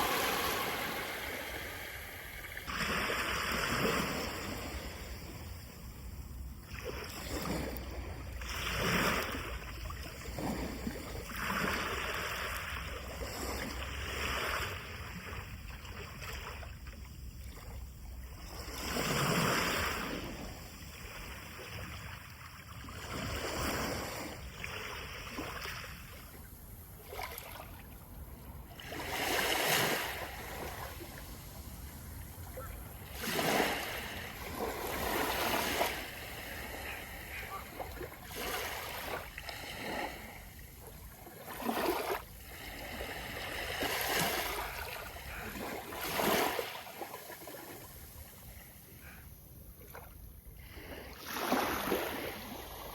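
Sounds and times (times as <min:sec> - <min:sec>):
surf breaking on shore: 0:00.0 - 0:04.8.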